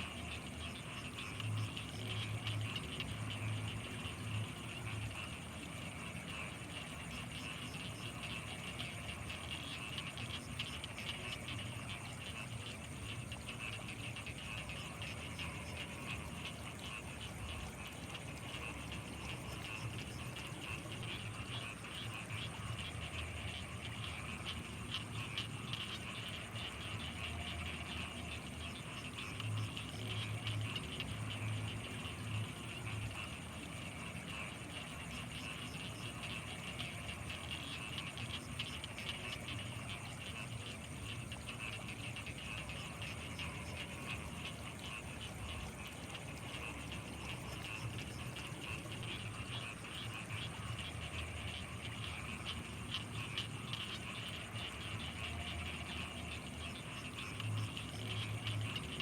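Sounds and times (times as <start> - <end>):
frogs and insects chattering: 0.0 - 59.0
low pulsing frog croaks: 0.0 - 59.0.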